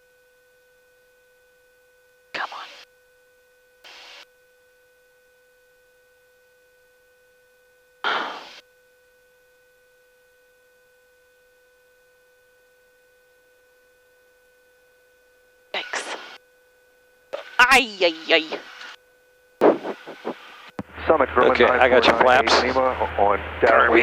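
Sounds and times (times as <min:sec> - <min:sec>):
faint electrical hum: 0:00.0 - 0:24.0
loud burst of noise: 0:08.0 - 0:08.6, 0:19.6 - 0:21.4.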